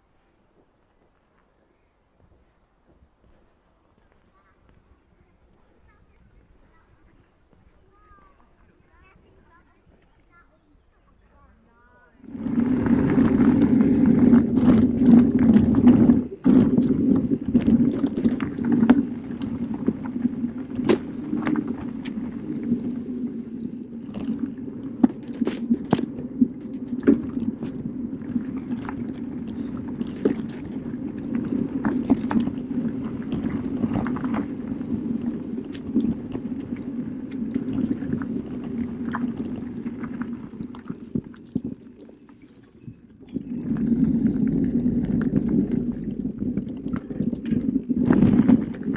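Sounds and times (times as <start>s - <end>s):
bike tyres rumbling on trail: 11.4s - 48.9s
bike knocking and rattling: 12.3s - 22.8s, 23.4s - 38.2s.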